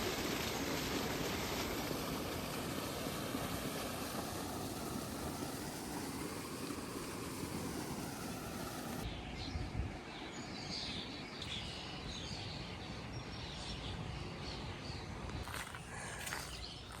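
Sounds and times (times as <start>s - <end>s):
steady rushing hiss: 0.0s - 9.1s
small birds chirping: 9.0s - 17.0s.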